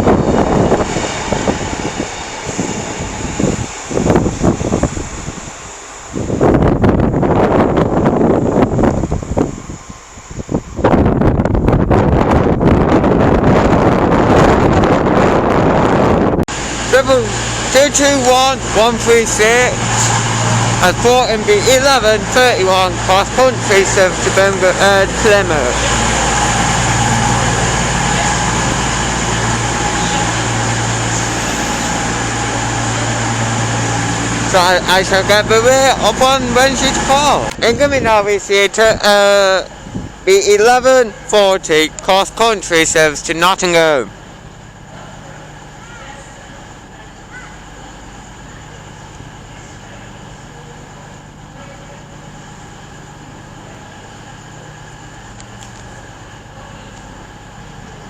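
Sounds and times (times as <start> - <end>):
diesel engines idling: 0.0 - 11.2, 16.5 - 58.0.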